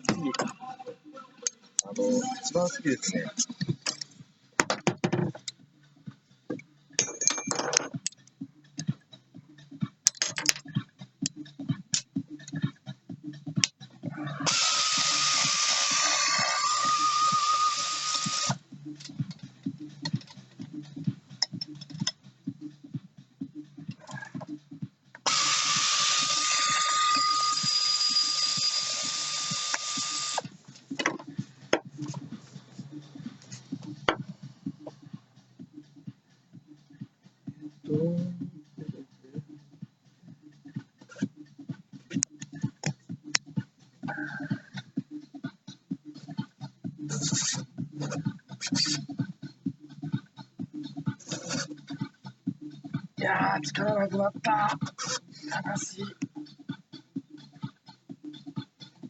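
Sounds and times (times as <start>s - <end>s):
tools clicking and clinking: 7.0s - 8.2s, 10.1s - 10.6s
power tool whining: 14.4s - 18.6s, 25.3s - 30.4s.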